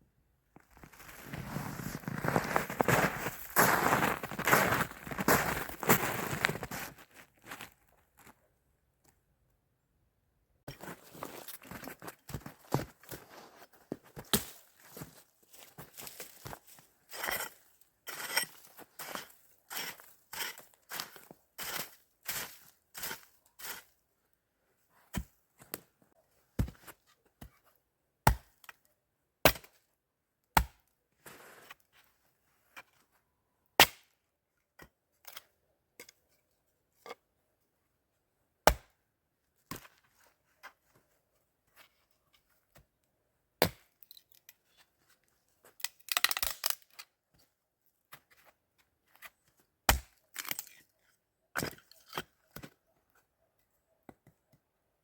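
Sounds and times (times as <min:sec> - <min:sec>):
axe chopping wood: 0:28.2 - 0:28.5, 0:29.4 - 0:29.7, 0:30.6 - 0:30.8, 0:33.8 - 0:34.1, 0:38.6 - 0:38.9, 0:43.6 - 0:43.9, 0:49.9 - 0:50.6
twigs crackling and snapping: 0:45.8 - 0:47.1.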